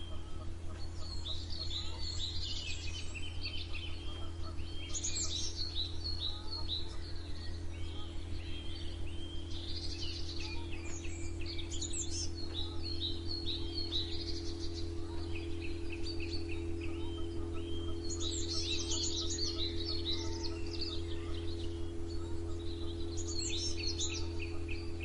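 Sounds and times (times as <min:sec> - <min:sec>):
songbirds chirping and singing: 0:00.0 - 0:25.0
steady low hum: 0:00.0 - 0:25.0.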